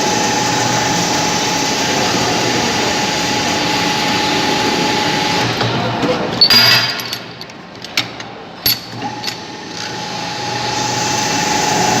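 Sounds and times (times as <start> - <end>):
machine whine: 0.0 - 5.7, 9.0 - 12.0.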